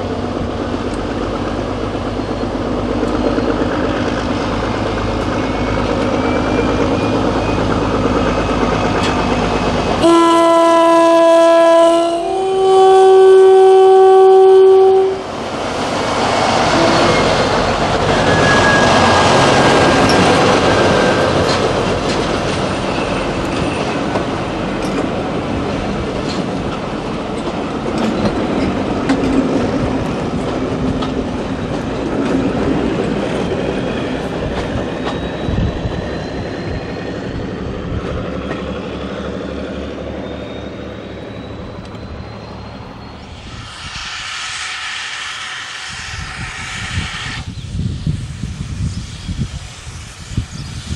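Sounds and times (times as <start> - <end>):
train passing with clattering wheels: 0.0 - 50.9
wheel squeals: 1.6 - 10.0, 16.1 - 25.3, 27.3 - 44.0.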